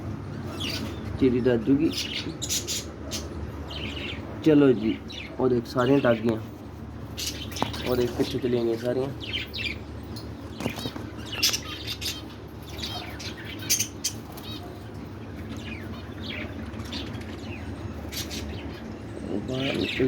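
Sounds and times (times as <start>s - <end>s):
steady low hum: 0.0s - 20.0s
wings fluttering: 10.4s - 11.8s, 13.6s - 18.5s.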